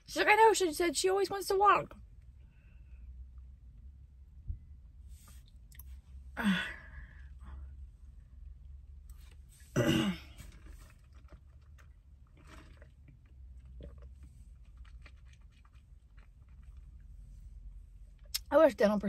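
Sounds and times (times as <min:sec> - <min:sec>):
person chewing food: 0:10.4 - 0:16.9.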